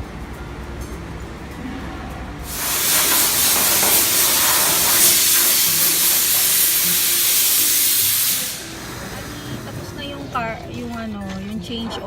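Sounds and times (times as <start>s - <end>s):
loud hissing spray: 2.4s - 10.4s.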